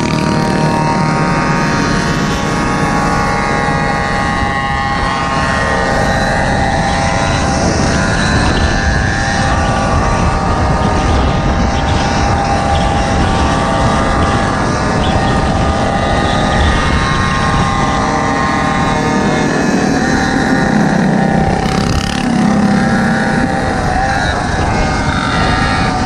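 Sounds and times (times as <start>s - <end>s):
small engines running: 0.0s - 26.0s.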